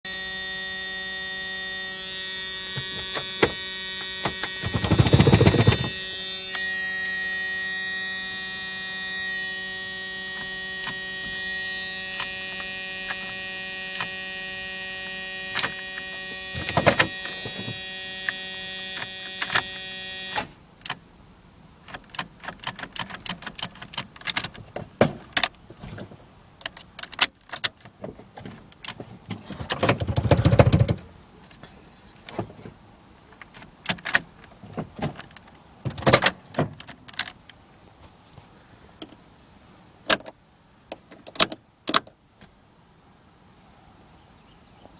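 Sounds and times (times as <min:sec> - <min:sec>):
electrical hum and whine: 0:00.1 - 0:23.0
loud noisy burst: 0:00.2 - 0:19.7.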